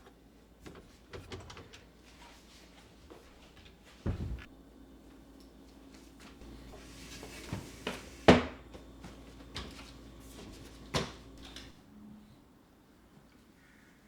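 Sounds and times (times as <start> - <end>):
faint steady hum: 4.0 - 13.7
knocks of objects being handled: 7.4 - 11.8.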